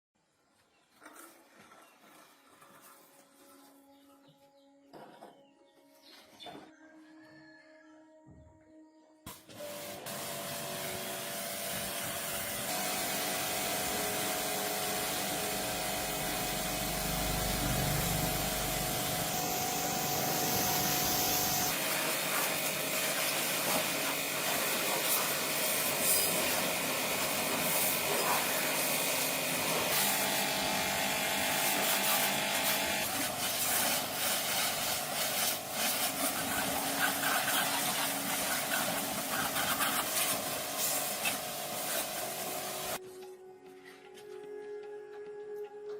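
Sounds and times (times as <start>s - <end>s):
power tool: 9.3s - 43.0s.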